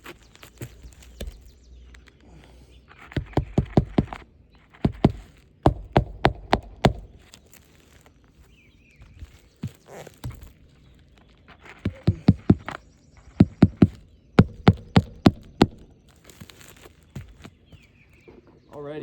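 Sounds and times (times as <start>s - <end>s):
hammer nailing shingle roof: 3.0s - 7.3s, 11.7s - 16.0s.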